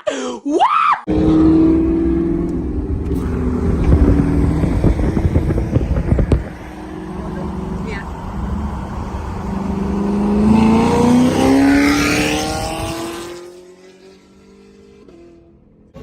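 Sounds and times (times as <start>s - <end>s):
car exhaust accelerating hard: 1.1s - 13.3s.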